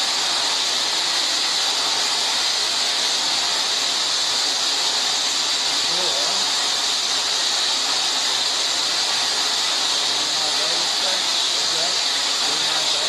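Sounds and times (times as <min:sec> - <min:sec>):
steady spraying hiss: 0:00.0 - 0:13.0.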